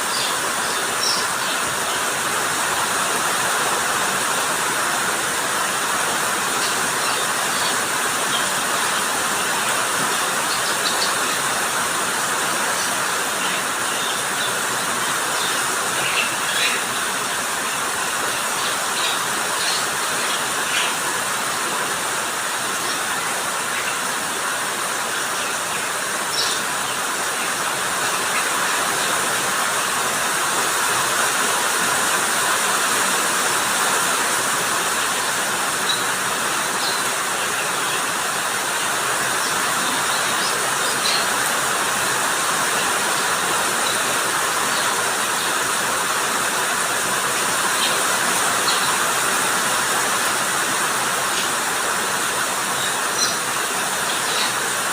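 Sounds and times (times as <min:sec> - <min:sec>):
steady rain: 0:00.0 - 0:54.9.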